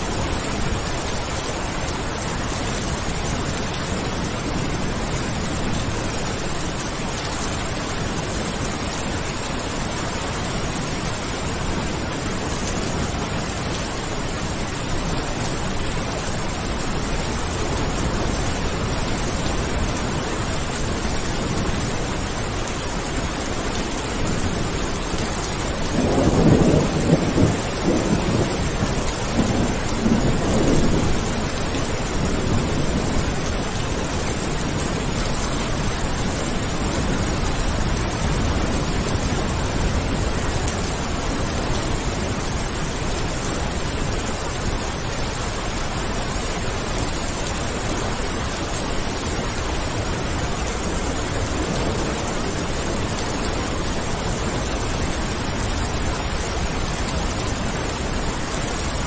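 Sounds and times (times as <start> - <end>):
rain falling: 0.0 - 59.0
thunder rumbling: 23.7 - 45.7.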